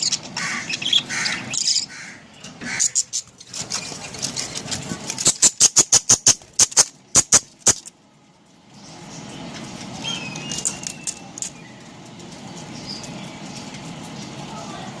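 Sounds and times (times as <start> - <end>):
steady background hum: 0.0 - 15.0
sharp high clicks: 5.2 - 7.9.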